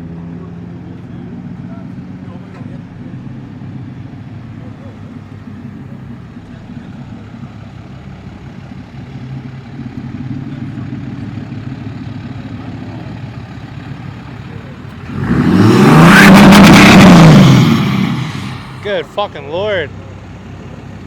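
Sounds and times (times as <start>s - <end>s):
vehicle engines running: 0.0s - 21.0s
vehicle accelerating past: 14.9s - 19.1s.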